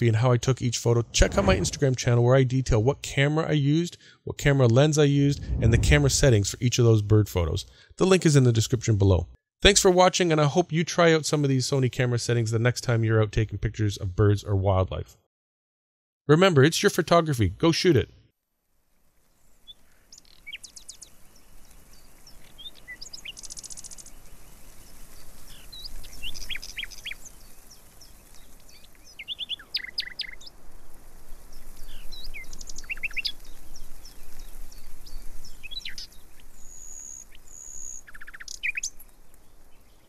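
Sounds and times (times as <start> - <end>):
faint outdoor background noise: 16.4 - 40.0
birds chirping: 19.6 - 30.6, 31.4 - 40.0.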